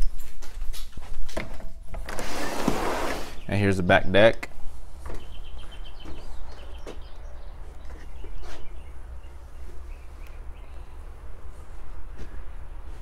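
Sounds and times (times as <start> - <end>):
birds chirping: 3.1 - 13.0.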